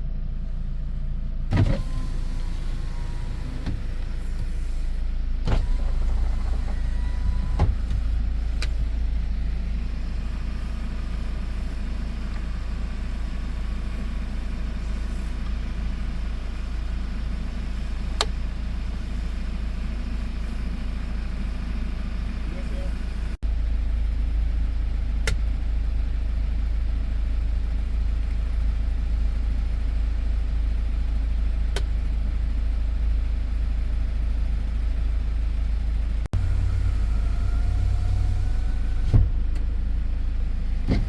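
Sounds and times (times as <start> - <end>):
truck engine idling: 0.0 - 41.0.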